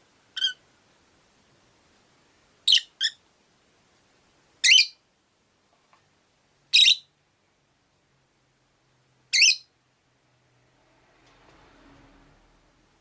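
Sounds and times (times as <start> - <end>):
parrot shrill short calls: 0.4 - 0.6, 4.6 - 5.0, 9.3 - 9.7.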